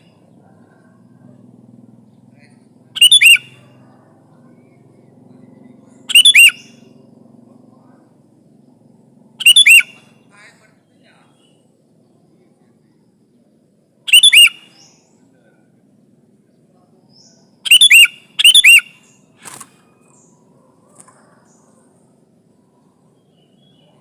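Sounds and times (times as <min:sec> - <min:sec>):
bulbul calling in gliding notes: 0:02.7 - 0:03.8, 0:04.6 - 0:07.4.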